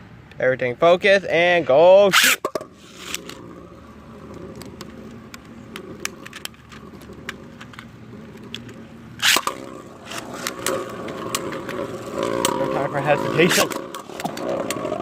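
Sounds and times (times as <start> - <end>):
spinning tops whirring and scraping: 2.0 - 15.0
loud rip of launcher: 2.1 - 3.2, 9.2 - 10.4.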